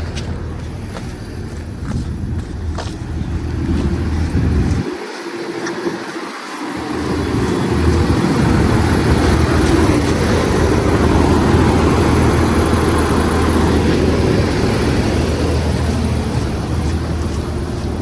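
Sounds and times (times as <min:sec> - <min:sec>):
diesel bus engine droning: 0:00.0 - 0:18.0.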